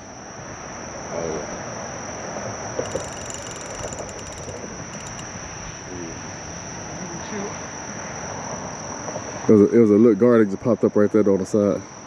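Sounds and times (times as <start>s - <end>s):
crickets chirping: 0.0s - 12.0s
fishing reel drag clicking: 2.8s - 5.4s.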